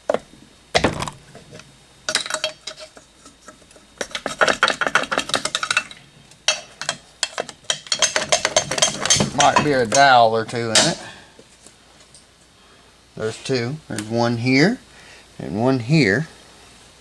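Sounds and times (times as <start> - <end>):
metal tools clanking: 4.0 - 11.2.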